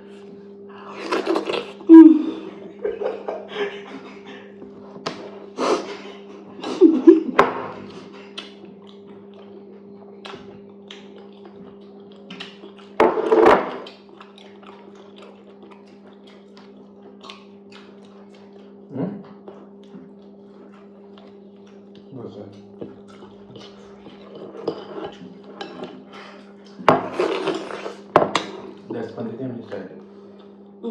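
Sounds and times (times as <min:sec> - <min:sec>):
steady low hum: 0:00.0 - 0:30.9
wet chewing: 0:07.5 - 0:29.2.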